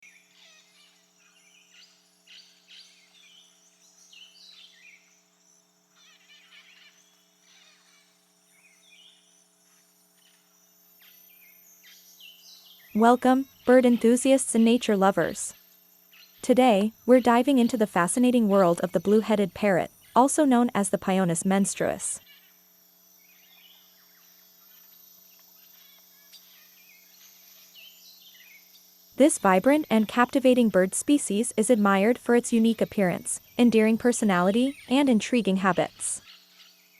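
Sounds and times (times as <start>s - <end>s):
faint steady hum: 0.0s - 36.9s
birds chirping and trilling: 0.1s - 9.7s, 10.9s - 22.6s, 26.3s - 36.9s
faint low hum: 12.7s - 22.2s, 29.2s - 36.3s.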